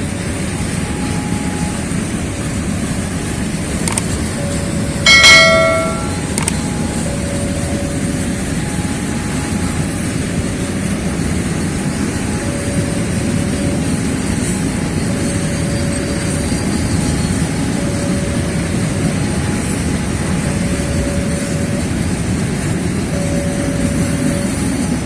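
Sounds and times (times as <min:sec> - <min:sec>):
train rumbling past: 0:00.0 - 0:25.0
loud metallic clang: 0:05.1 - 0:06.5.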